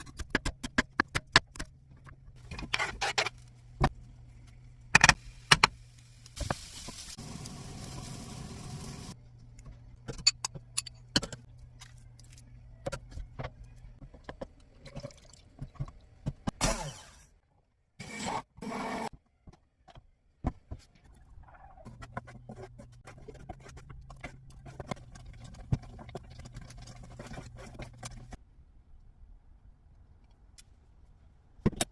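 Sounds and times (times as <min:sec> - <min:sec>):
low steady hum: 0:07.2 - 0:16.3.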